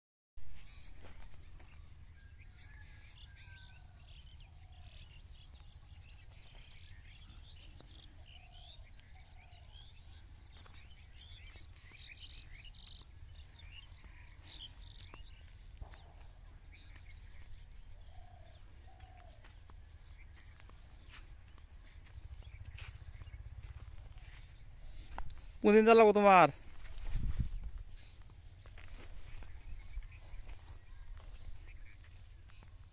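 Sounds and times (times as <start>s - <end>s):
small birds twittering: 0.5s - 32.9s
low steady rumble: 19.8s - 25.6s.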